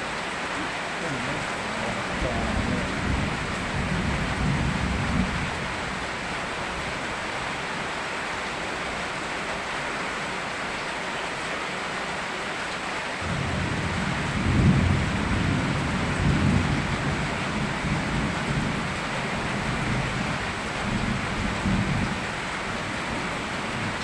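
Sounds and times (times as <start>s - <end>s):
rain falling: 0.0s - 24.0s
thunder rumbling: 1.0s - 8.0s, 13.2s - 24.0s.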